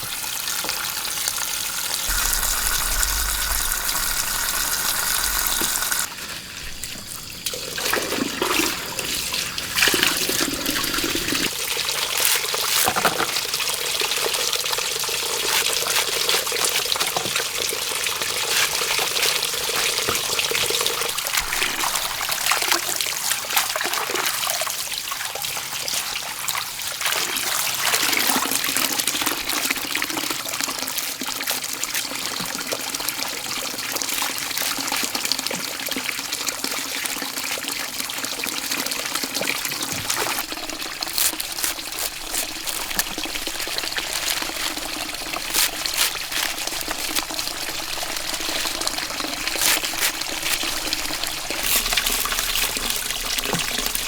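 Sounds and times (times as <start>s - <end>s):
water trickling and splashing: 2.0s - 54.0s.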